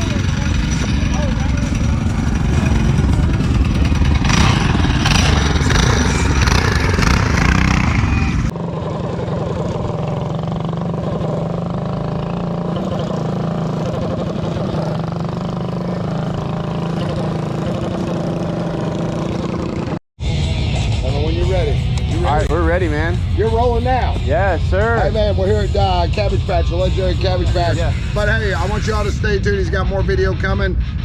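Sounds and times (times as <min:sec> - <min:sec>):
mini bike engines running: 0:00.0 - 0:20.0
steady engine drone: 0:00.0 - 0:31.0.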